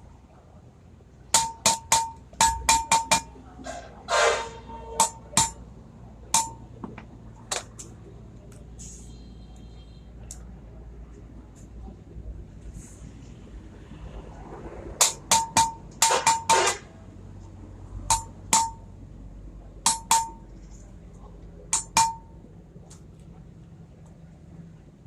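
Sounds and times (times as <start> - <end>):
metal-on-metal strikes ringing: 1.3 - 3.3, 4.2 - 5.6, 6.3 - 6.7, 15.0 - 16.8, 18.1 - 18.9, 19.9 - 20.4, 21.7 - 22.4.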